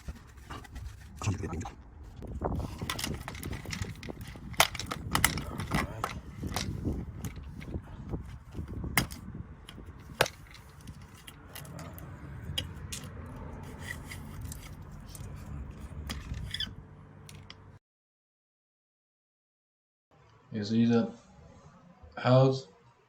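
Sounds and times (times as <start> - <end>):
metallic tool clicks and scrapes: 9.0 - 16.7.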